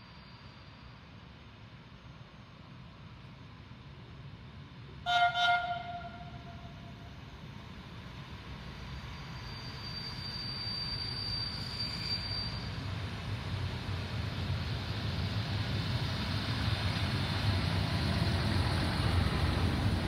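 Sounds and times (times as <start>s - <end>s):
thin high steady squeal: 0.0s - 1.3s, 8.7s - 13.3s
train horn blasts: 5.0s - 7.1s.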